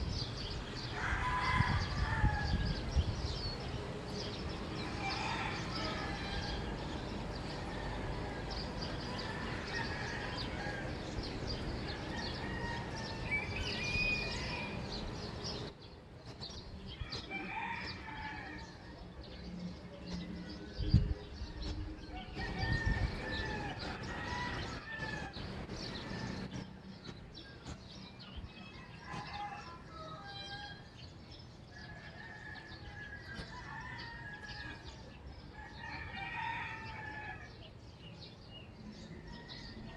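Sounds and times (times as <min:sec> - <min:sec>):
small birds chirping: 0:00.0 - 0:39.9
rooster crowing: 0:00.8 - 0:02.8, 0:04.8 - 0:15.0, 0:17.1 - 0:19.1, 0:22.1 - 0:26.4, 0:28.6 - 0:30.9, 0:31.7 - 0:37.6.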